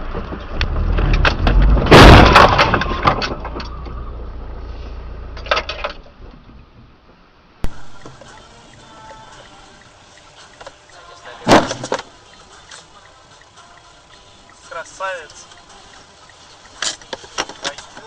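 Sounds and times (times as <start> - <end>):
car crash: 0.0 - 7.9, 11.4 - 12.1
low vehicle rumble: 0.0 - 18.0
debris clattering: 1.0 - 3.8
glass shattering: 1.9 - 3.4.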